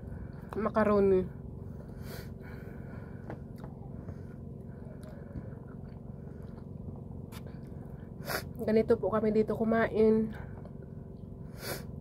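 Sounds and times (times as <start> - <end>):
steady low hum: 0.0 - 12.0
soft chewing: 3.1 - 8.2.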